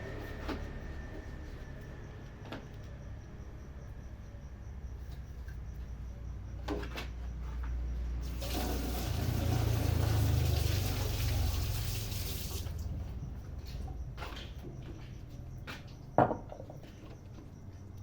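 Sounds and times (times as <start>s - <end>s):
tap water running into sink: 8.3s - 12.8s.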